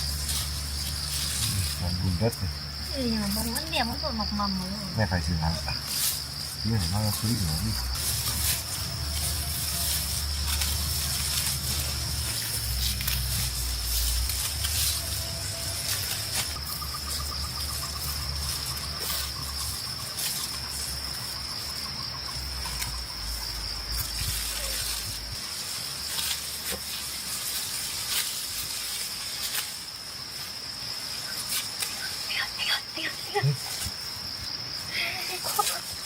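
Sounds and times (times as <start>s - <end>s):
low rumble: 0.0s - 21.7s
crickets trilling: 0.0s - 36.0s.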